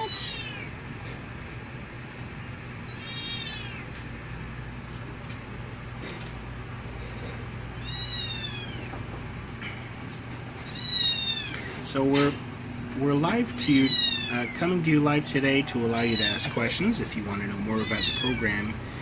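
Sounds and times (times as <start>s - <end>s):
kitten mewing: 0.0s - 0.8s, 2.9s - 4.0s, 7.8s - 8.9s, 10.6s - 11.8s, 13.6s - 14.6s, 15.8s - 16.7s, 17.6s - 18.8s.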